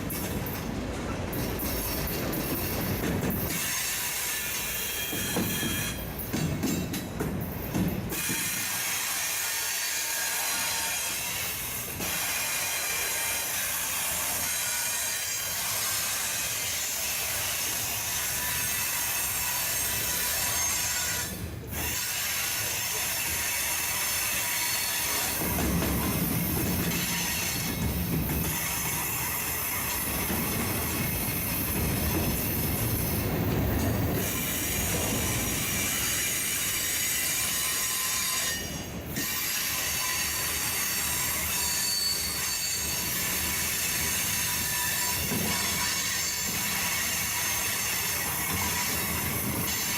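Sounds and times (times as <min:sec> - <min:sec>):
freight train cars rolling: 0:00.0 - 0:49.9
wheel squeal: 0:03.5 - 0:06.1, 0:34.2 - 0:49.9.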